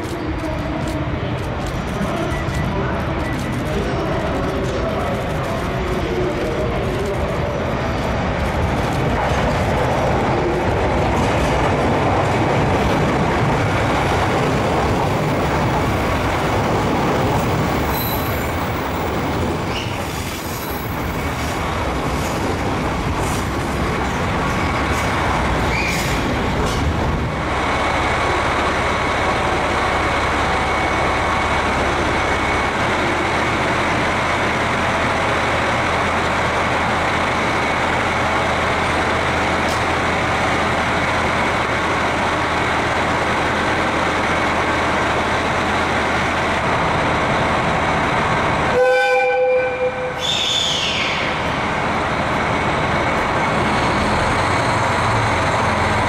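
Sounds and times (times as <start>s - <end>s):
train rolling noise: 0.0s - 56.0s
wheel squeals: 19.7s - 21.4s, 25.6s - 26.3s.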